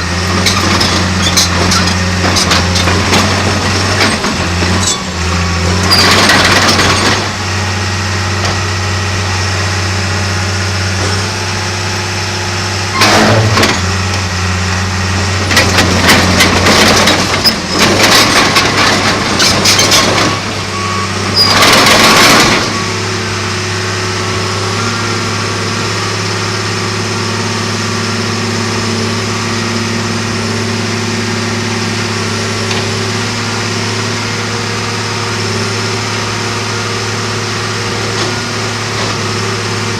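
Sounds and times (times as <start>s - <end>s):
diesel engine running: 0.0s - 39.9s
loud clattering bursts: 5.9s - 7.4s, 15.5s - 20.5s, 21.4s - 22.8s.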